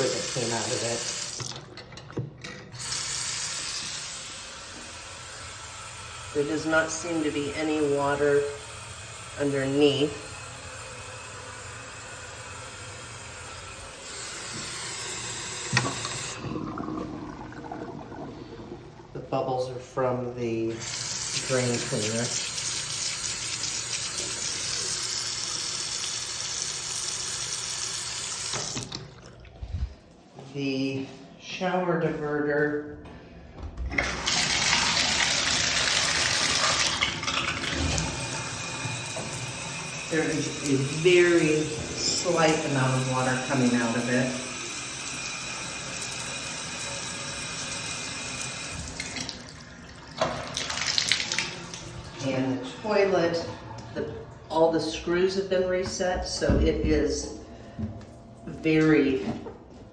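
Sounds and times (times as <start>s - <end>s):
faucet running into sink: 0.0s - 19.4s, 20.7s - 29.6s, 33.9s - 52.3s.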